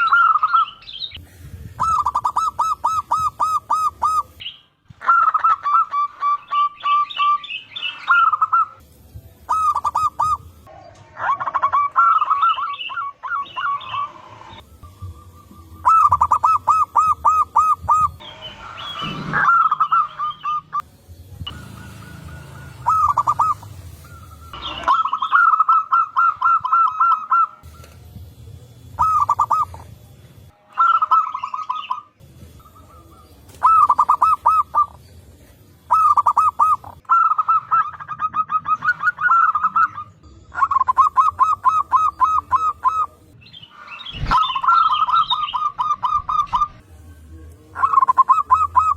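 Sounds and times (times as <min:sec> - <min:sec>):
doves cooing: 0:00.0 - 0:08.8, 0:09.5 - 0:20.8, 0:21.5 - 0:28.0, 0:28.8 - 0:30.0, 0:30.8 - 0:35.1, 0:35.8 - 0:43.2, 0:47.7 - 0:48.9.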